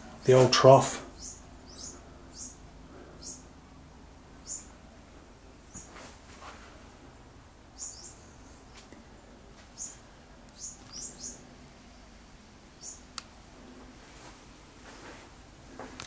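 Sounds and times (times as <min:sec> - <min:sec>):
small birds chirping: 0:00.1 - 0:03.6, 0:04.3 - 0:06.1, 0:07.7 - 0:13.3.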